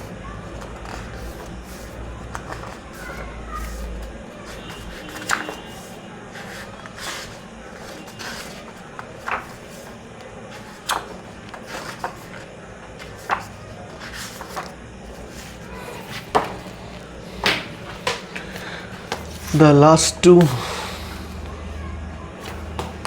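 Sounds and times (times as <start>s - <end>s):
paper swishes of turning pages: 0.0s - 19.6s
pages slapping down: 0.4s - 19.6s, 22.4s - 23.0s.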